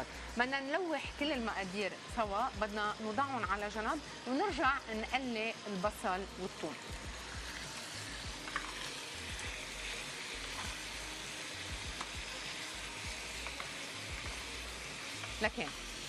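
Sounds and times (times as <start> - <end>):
chicken sizzling in hot oil: 0.0 - 16.0
spoon stirring in a pan: 7.2 - 9.6, 11.8 - 15.8.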